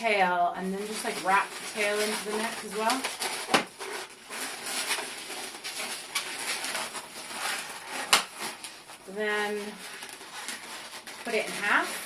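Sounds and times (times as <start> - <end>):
balloons rubbing and squeaking: 0.0 - 12.0.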